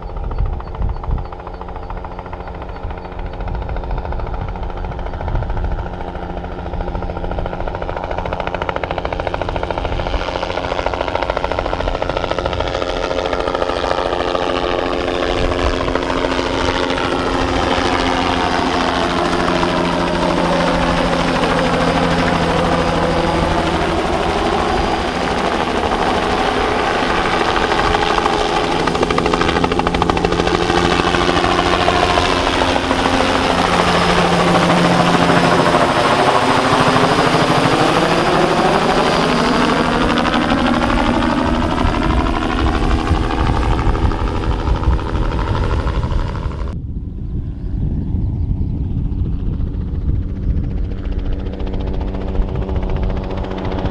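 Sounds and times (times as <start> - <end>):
helicopter turbine and rotor: 0.0 - 53.9.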